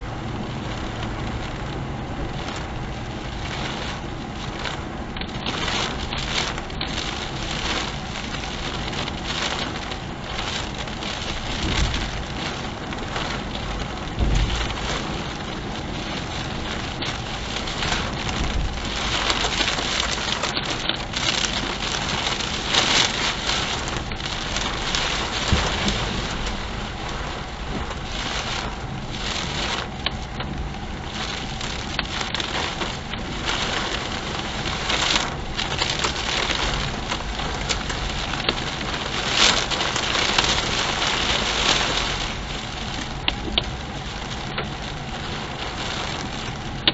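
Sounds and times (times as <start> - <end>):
heavy rain: 0.0 - 46.9
low thumps: 13.8 - 15.2, 23.8 - 28.1.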